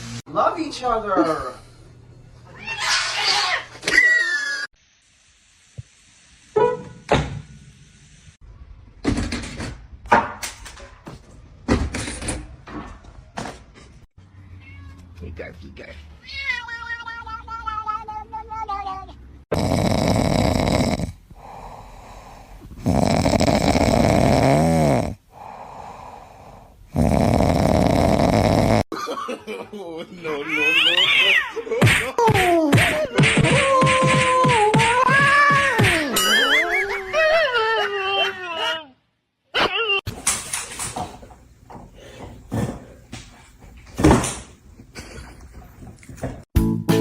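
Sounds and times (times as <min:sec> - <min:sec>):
pet snoring loudly: 0:19.5 - 0:28.9
quiet breathing: 0:21.1 - 0:23.3, 0:25.1 - 0:27.4, 0:41.8 - 0:43.7.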